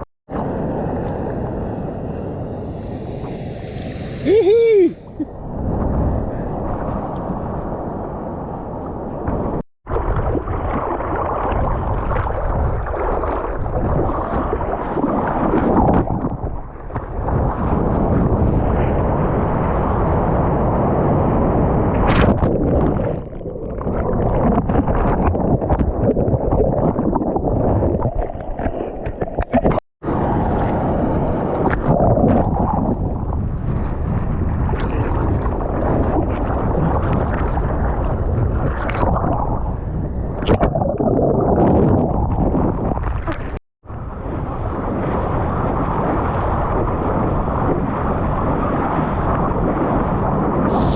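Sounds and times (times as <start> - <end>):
wind buffeting microphone: 0.3 - 50.9.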